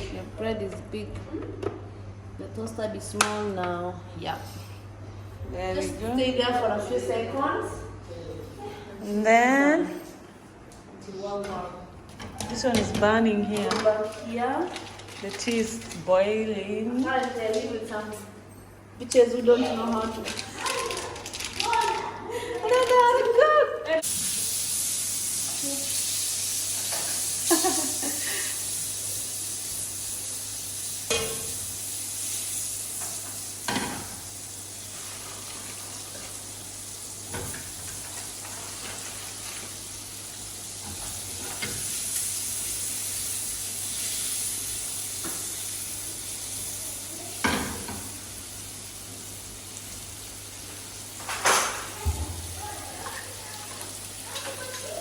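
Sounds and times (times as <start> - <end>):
food sizzling in a pan: 24.0 - 55.0.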